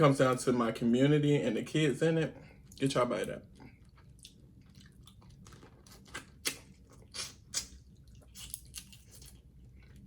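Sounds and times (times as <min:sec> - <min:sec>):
person chewing: 0:03.4 - 0:10.0.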